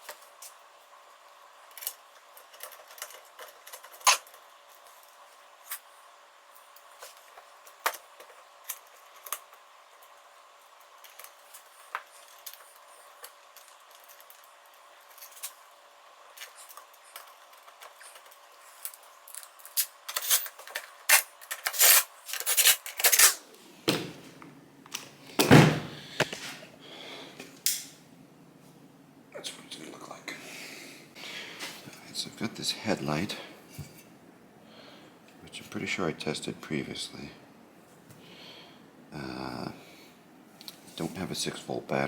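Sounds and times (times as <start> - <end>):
metal parts and tools clinking: 19.2 - 23.4.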